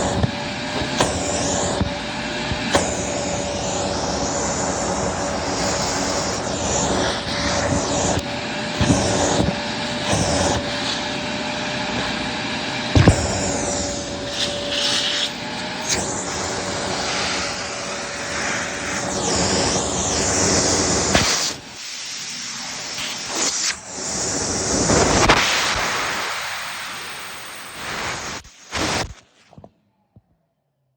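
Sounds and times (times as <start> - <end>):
vacuum cleaner running: 0.0 - 29.2.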